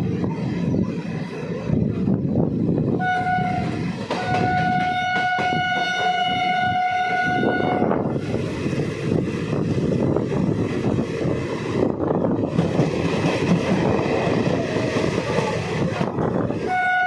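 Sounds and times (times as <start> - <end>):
train rumbling: 0.0 - 17.0
train horn blasts: 2.9 - 8.1, 16.6 - 17.0.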